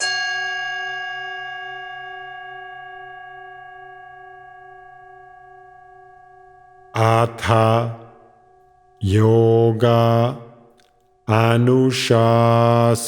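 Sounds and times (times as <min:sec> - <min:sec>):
singing bowl ringing: 0:00.0 - 0:07.0, 0:08.1 - 0:09.0.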